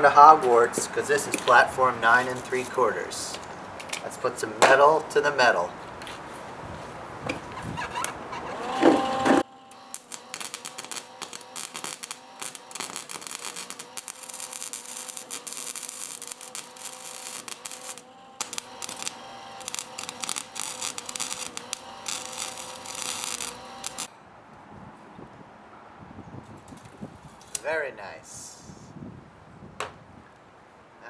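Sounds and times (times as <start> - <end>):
faint welder hum: 7.5 - 24.1
welding arc crackling: 7.8 - 24.1.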